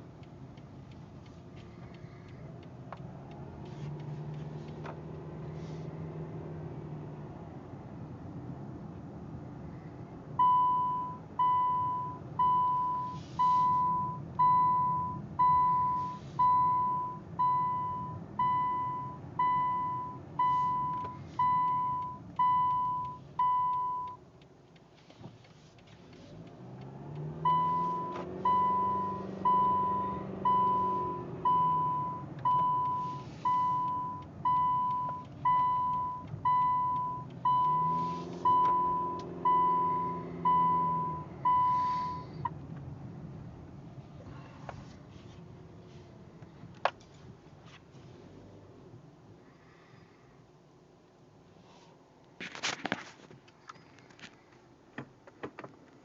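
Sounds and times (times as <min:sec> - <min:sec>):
car engine idling: 0:00.0 - 0:06.0
reverse warning beeper: 0:10.4 - 0:24.2, 0:27.4 - 0:42.5.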